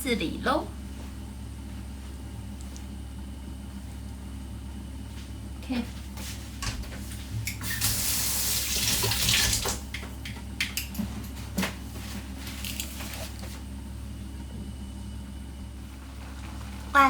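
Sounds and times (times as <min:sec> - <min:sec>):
kitchen tap running: 0:07.4 - 0:11.0.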